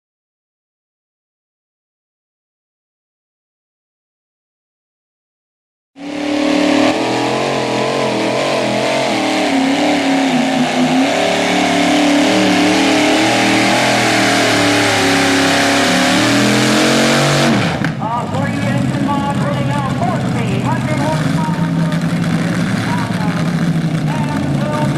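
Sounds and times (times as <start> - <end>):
truck engine at full throttle: 6.0 - 24.9.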